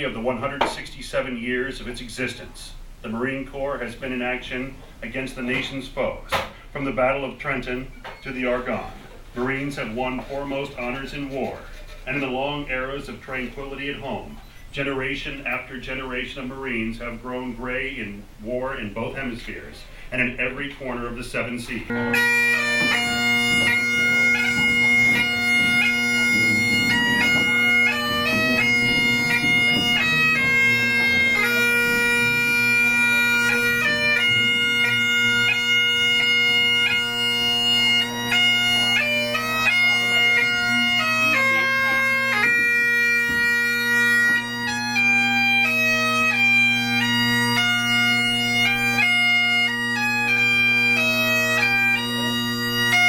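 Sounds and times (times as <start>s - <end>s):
bagpipes playing: 20.9s - 53.0s.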